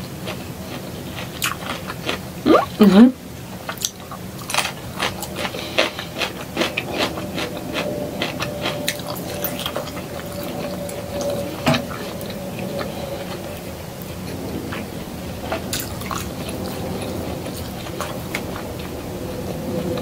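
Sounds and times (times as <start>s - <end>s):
wet chewing: 0.3s - 2.7s, 3.7s - 14.9s, 15.5s - 20.0s
mouth clicks and smacks: 2.5s - 2.9s.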